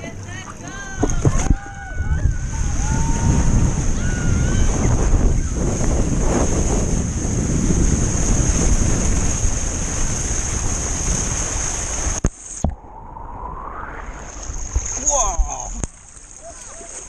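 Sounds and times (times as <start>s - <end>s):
rushing water: 0.0s - 17.0s
wind buffeting microphone: 0.9s - 16.0s
steady high whine: 12.2s - 16.2s.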